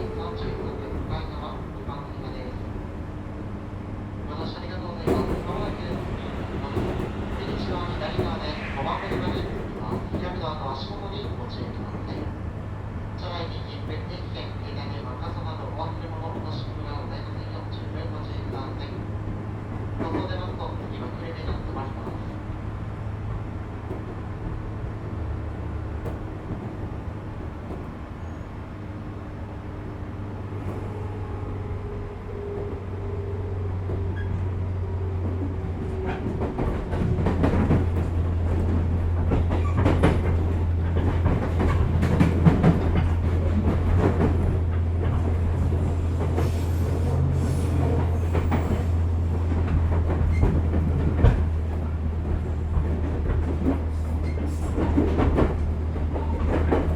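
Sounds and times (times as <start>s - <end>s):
train motor and gear hum: 0.0s - 56.9s
wheels clattering over rail joints: 35.2s - 56.9s.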